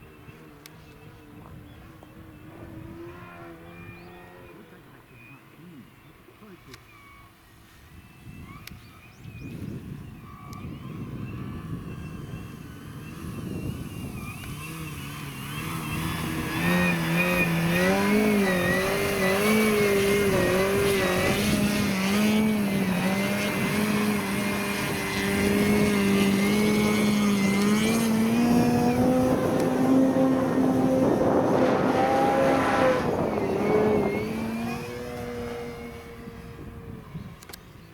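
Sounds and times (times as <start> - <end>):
model airplane motor buzzing: 7.9 - 37.9.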